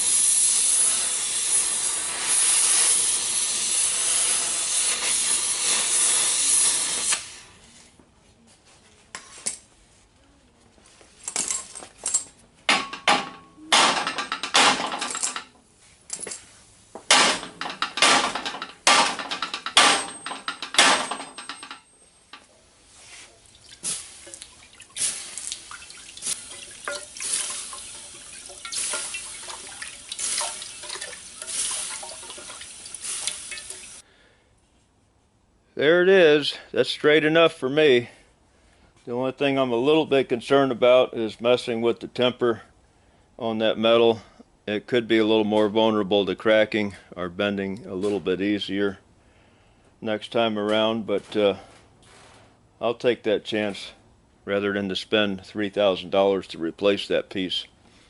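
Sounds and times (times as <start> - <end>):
hissing and splashing bursts: 0.0 - 7.4, 23.0 - 34.0
cutting torch hissing: 0.0 - 7.6, 27.1 - 34.0.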